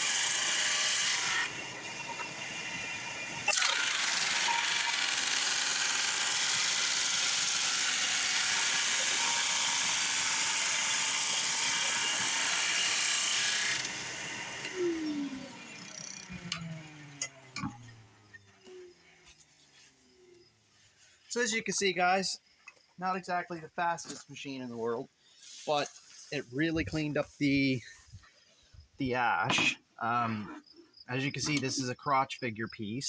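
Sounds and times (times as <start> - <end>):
drum sander sanding wood: 0.0 - 16.6
shop vac running: 0.0 - 19.2.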